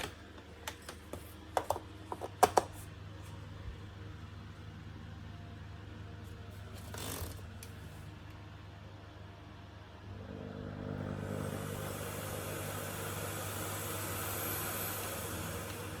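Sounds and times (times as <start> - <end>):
vacuum cleaner motor whirring: 10.1 - 16.0.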